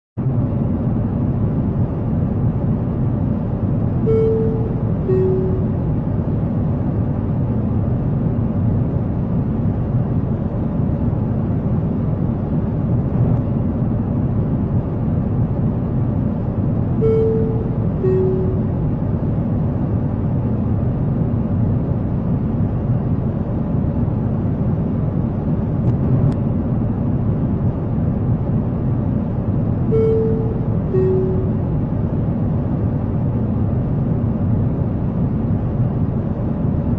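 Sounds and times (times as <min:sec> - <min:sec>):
airliner cabin rumble: 0:00.2 - 0:36.9
two-note cabin chime: 0:04.1 - 0:05.8, 0:17.0 - 0:18.8, 0:30.0 - 0:31.7.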